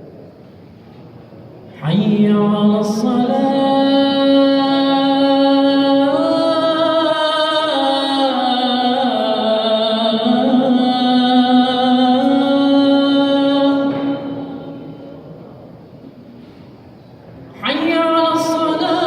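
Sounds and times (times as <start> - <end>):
man chanting call to prayer: 1.7 - 15.1, 17.6 - 19.0.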